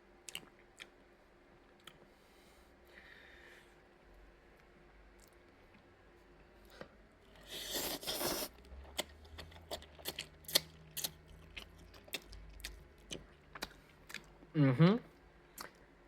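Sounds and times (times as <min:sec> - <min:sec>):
chewing with mouth clicks: 0:00.2 - 0:01.0, 0:07.7 - 0:14.5, 0:15.5 - 0:15.9
slurping noodles: 0:07.4 - 0:08.6.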